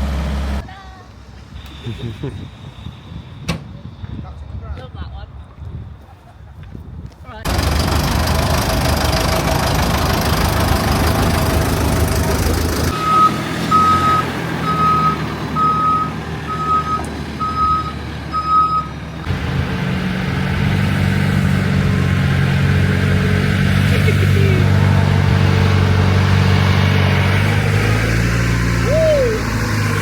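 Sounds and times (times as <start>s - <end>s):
diesel engines running: 0.0s - 3.2s, 7.4s - 30.0s
reversing alarm beeping: 12.9s - 18.9s.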